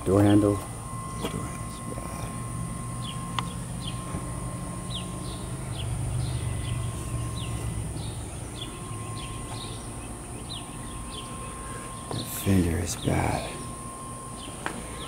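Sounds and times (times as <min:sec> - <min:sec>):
low steady outdoor rumble: 0:00.0 - 0:15.0
bird chirping: 0:02.9 - 0:04.2, 0:04.8 - 0:13.7.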